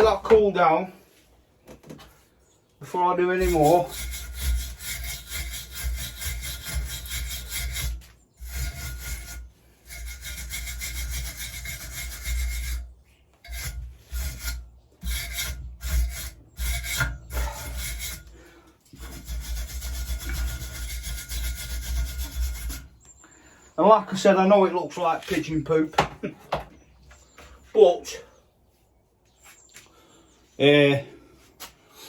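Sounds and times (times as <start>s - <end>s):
hand tool scraping steel: 2.9s - 23.2s.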